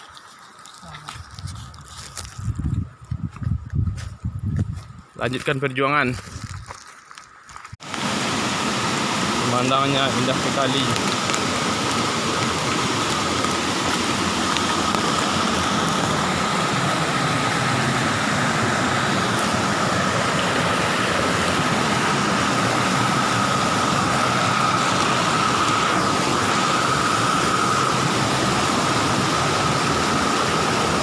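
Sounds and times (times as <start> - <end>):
wind and road noise: 1.0 - 31.0
thin steady whine: 7.6 - 31.0
motorcycle engine running: 8.0 - 31.0.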